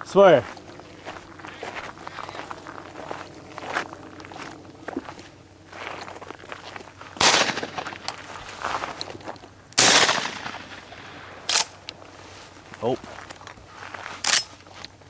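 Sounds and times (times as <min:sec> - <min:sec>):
shotgun shots: 0:07.2 - 0:08.2, 0:09.8 - 0:11.7.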